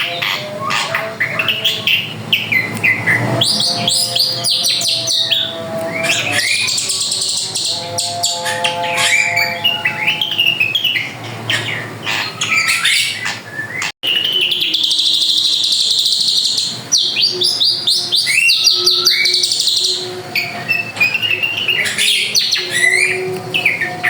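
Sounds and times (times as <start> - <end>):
rapid buzzing trill: 0.0 - 13.2
bird singing whistles and chirps: 0.0 - 24.0.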